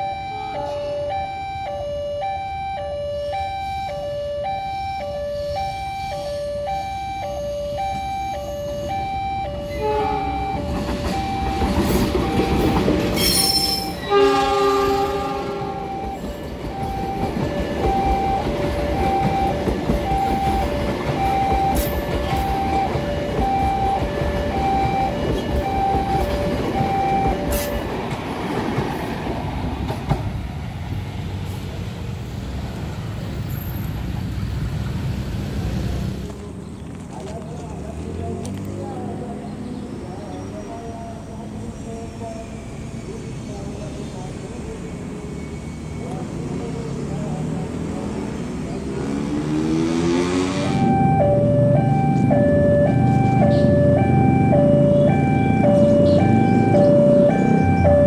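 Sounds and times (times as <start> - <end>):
level crossing alarm two tones: 0.0 - 14.2, 15.6 - 27.8, 50.6 - 58.0
wagons rumbling over rails: 7.7 - 58.0
train horn: 9.7 - 10.6, 13.2 - 16.1.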